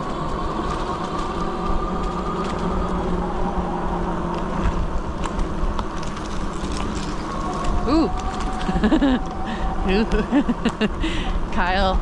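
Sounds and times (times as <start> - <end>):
bike clicks and ticks: 0.0 - 9.6
tyres rumbling: 0.0 - 12.0
wind on microphone: 0.0 - 12.0.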